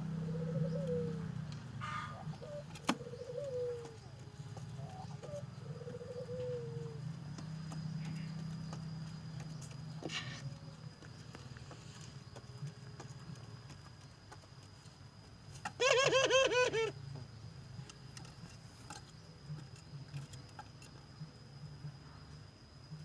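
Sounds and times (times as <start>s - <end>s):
dove cooing: 0.0s - 10.7s, 15.6s - 17.0s.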